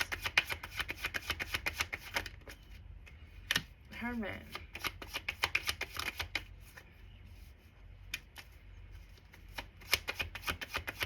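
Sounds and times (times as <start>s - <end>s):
cards being shuffled: 0.0s - 2.6s, 4.5s - 6.8s, 8.0s - 11.0s.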